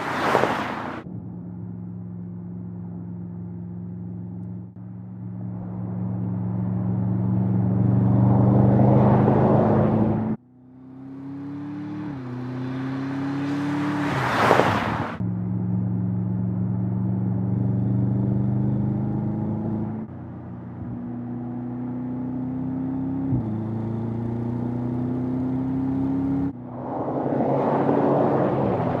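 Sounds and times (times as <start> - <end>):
car engine accelerating through gears: 16.0 - 29.0
loud rushing noise: 26.6 - 29.0.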